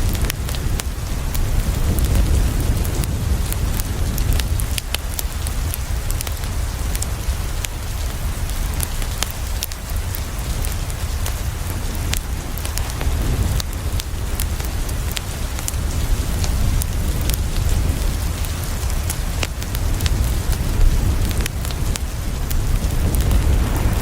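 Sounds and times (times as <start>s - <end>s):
rain on a window: 0.0s - 24.0s
deep low rumble: 10.4s - 24.0s.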